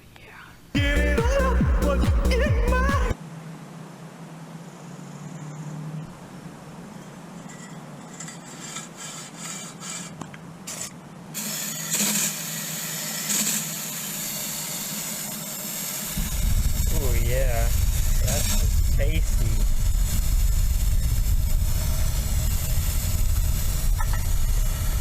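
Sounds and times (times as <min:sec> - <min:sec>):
hand scraping metal surface: 0:07.4 - 0:11.0
steady hiss: 0:08.4 - 0:25.0.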